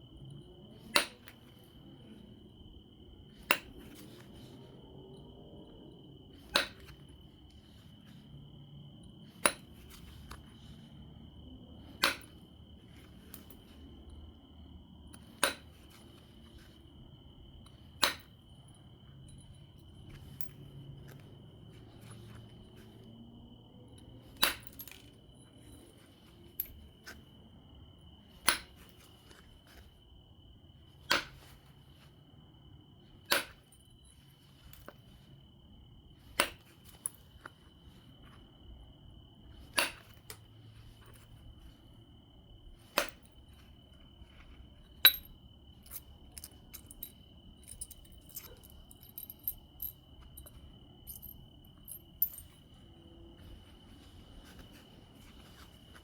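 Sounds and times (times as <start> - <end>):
sharp glassy stone clicks: 6.5 - 6.9, 24.4 - 25.0
light stone clicks: 45.0 - 52.6.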